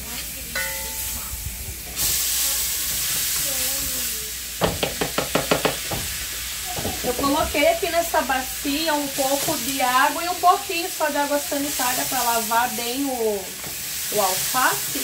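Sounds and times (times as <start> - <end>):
loud sizzle in hot fat: 0.0 - 15.0
utensil knocking against pan: 4.6 - 6.1.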